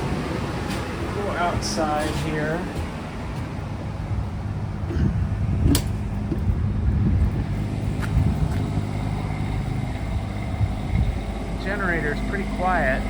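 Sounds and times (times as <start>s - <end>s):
generator humming: 0.0s - 13.0s
door latch click: 5.6s - 6.0s.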